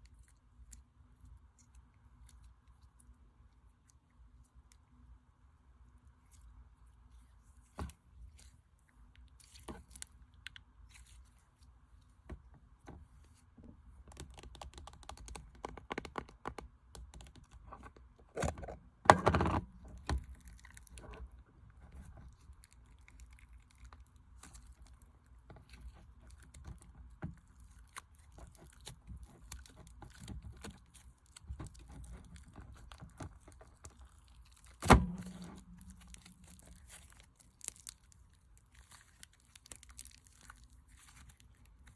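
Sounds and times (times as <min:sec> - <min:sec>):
slime clicking and crackling: 0:19.8 - 0:41.9
slime squishing and popping: 0:22.2 - 0:41.9.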